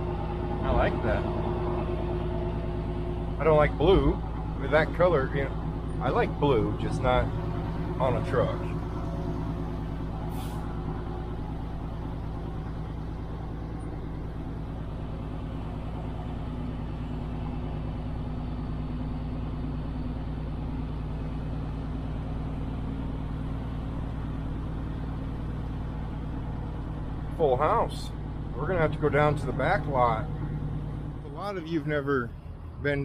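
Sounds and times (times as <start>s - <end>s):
diesel truck engine running: 0.0s - 33.0s
air hissing: 10.3s - 10.7s.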